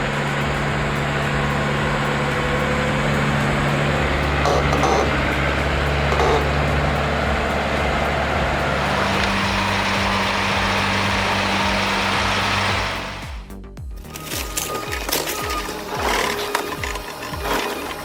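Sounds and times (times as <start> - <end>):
truck diesel engine running: 0.0 - 13.5.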